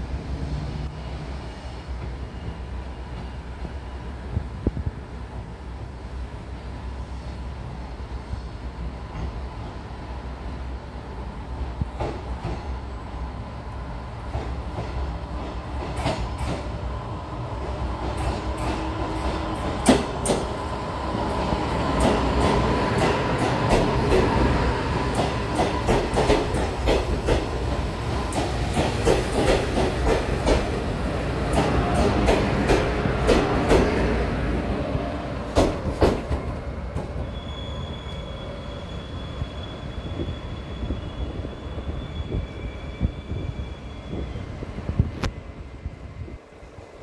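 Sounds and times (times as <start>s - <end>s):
train rumble: 0.0s - 47.0s
high brake squeal: 37.2s - 44.6s.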